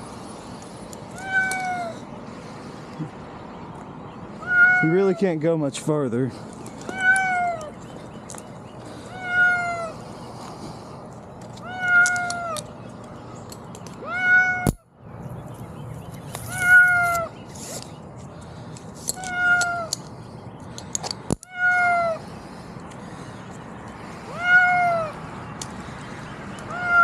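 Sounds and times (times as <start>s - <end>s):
cat meowing: 1.1s - 2.0s, 4.4s - 4.9s, 6.9s - 7.7s, 9.1s - 9.9s, 11.6s - 12.6s, 14.0s - 14.7s, 16.5s - 17.3s, 19.2s - 19.9s, 21.5s - 22.2s, 24.3s - 25.2s, 26.7s - 27.0s.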